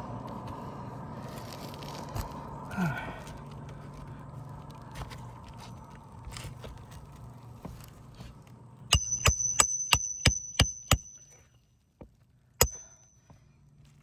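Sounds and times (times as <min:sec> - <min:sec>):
hammer ringing on metal: 0:08.9 - 0:11.4, 0:12.6 - 0:13.1.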